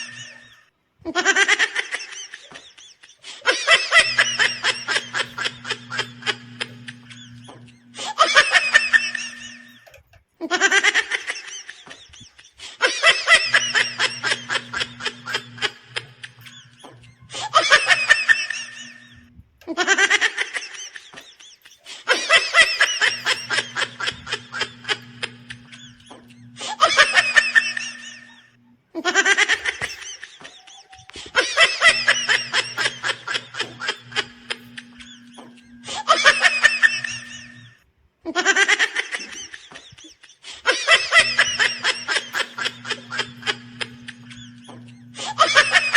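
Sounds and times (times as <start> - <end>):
person laughing: 0.0 - 45.9.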